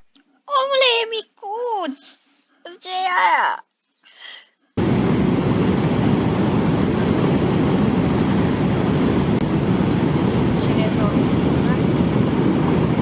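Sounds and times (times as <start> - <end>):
waterfall and river roaring: 4.8 - 13.0
wind buffeting microphone: 4.8 - 13.0.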